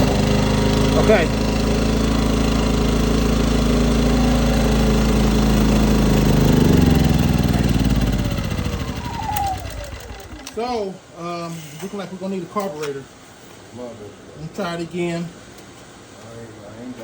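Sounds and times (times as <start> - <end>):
generator engine running: 0.0 - 10.8.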